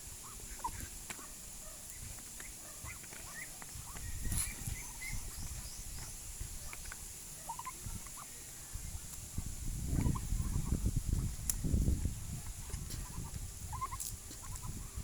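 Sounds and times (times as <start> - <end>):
poultry calling: 0.2 - 6.1, 6.7 - 9.0, 9.9 - 10.8, 12.6 - 15.0.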